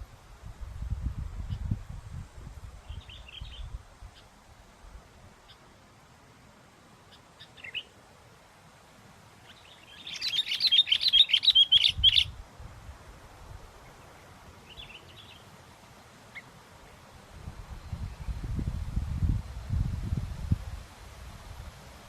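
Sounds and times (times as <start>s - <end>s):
bird chirps: 7.1s - 7.9s, 9.4s - 12.3s, 13.8s - 15.5s
bird rapid chattering song: 7.1s - 7.9s, 9.4s - 12.3s.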